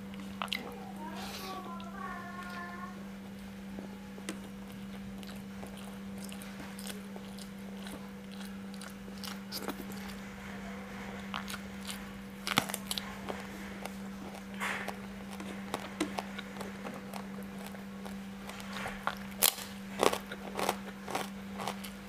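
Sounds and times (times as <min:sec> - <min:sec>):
close-up chewing: 0:00.0 - 0:02.7, 0:04.2 - 0:22.0
steady low hum: 0:00.0 - 0:22.0
crunchy bites: 0:11.2 - 0:22.0.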